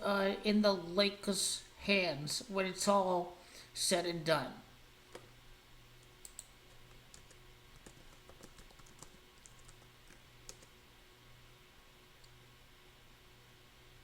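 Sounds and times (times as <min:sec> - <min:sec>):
faint low hum: 0:00.0 - 0:14.0
keyboard typing clicks: 0:06.2 - 0:10.7.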